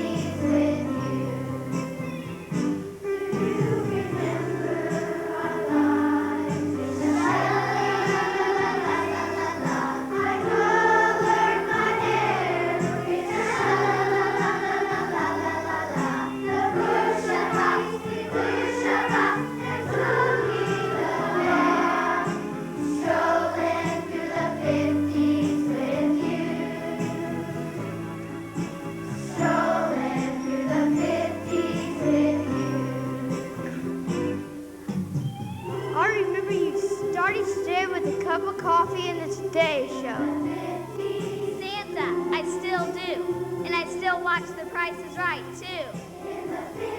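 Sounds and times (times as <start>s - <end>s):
children's choir singing: 0.0s - 2.0s, 3.0s - 34.6s, 35.6s - 46.9s
instrumental backing with bass line: 15.5s - 46.9s.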